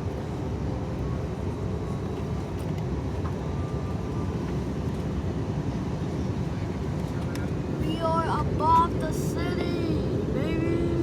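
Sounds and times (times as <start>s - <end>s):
aircraft cabin engine rumble: 0.0s - 11.0s.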